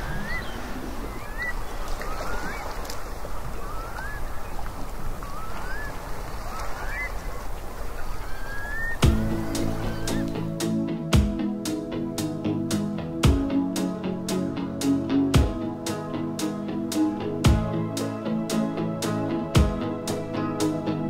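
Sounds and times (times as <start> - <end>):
birds short rising calls: 0.0 - 2.8, 3.4 - 10.5
band music: 9.0 - 21.0.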